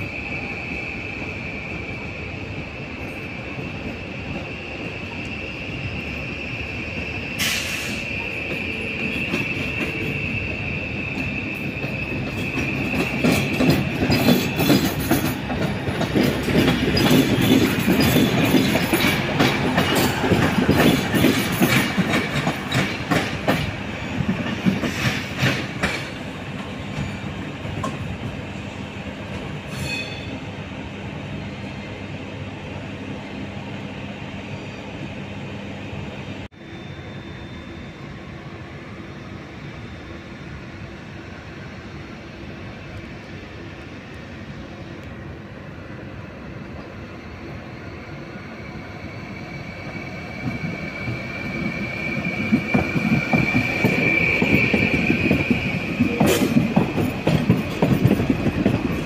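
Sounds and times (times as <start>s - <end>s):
train wheels squealing: 0.0s - 44.9s, 45.5s - 59.0s
train wheels clattering: 11.1s - 28.4s, 50.4s - 59.0s.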